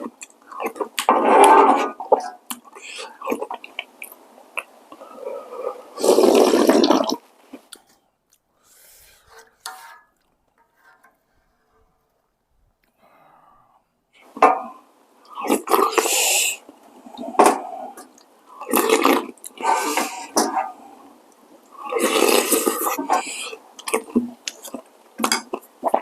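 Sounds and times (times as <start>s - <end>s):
faint eating sounds: 0.0s - 12.1s, 12.8s - 26.0s
person slurping noodles: 5.0s - 7.2s, 15.4s - 18.0s, 18.6s - 20.8s, 21.8s - 24.1s.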